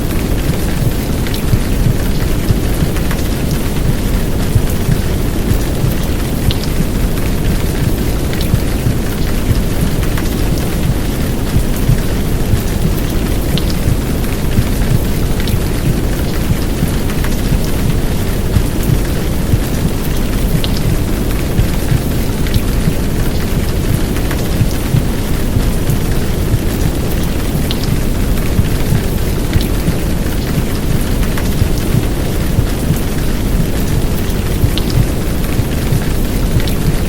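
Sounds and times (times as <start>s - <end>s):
heavy rain: 0.0s - 37.0s.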